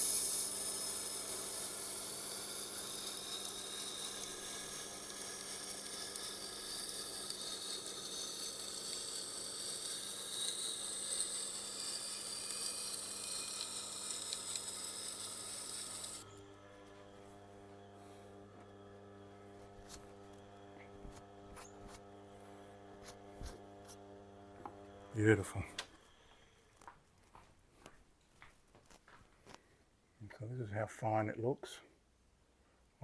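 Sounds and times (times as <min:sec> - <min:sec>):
knife grinding on wheel: 0:00.0 - 0:17.0, 0:19.6 - 0:22.1.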